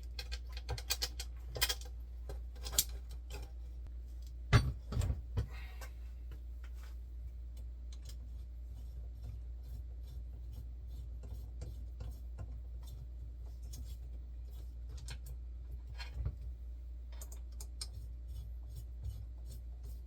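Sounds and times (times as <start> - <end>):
steady low hum: 0.0 - 20.0
rubbing and scraping: 8.0 - 16.5, 17.3 - 20.0.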